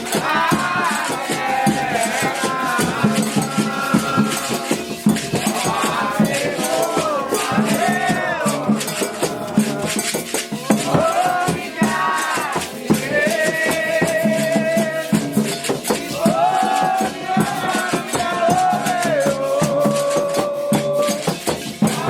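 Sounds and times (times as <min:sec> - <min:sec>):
percussion with shaken rattles: 0:00.0 - 0:22.0
voices singing in chorus: 0:00.0 - 0:22.0.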